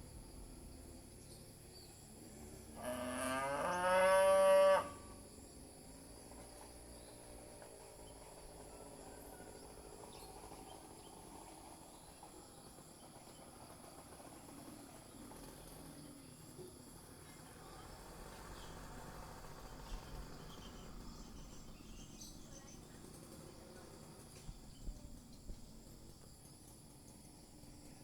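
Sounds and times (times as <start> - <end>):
high insect hum: 0.0 - 28.0
cow mooing: 2.8 - 5.0.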